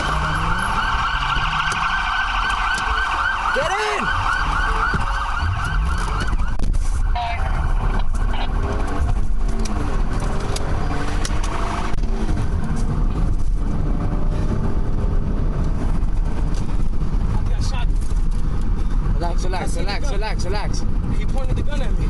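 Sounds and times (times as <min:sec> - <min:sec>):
police siren yelping: 0:00.0 - 0:09.2
car engine rumble: 0:00.0 - 0:22.0
road noise: 0:00.0 - 0:22.0.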